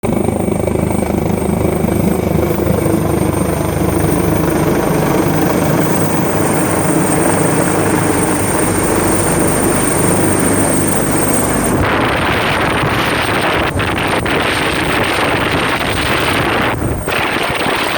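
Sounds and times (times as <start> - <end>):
helicopter high whine: 0.0 - 17.9
helicopter rotor beating: 0.0 - 17.9.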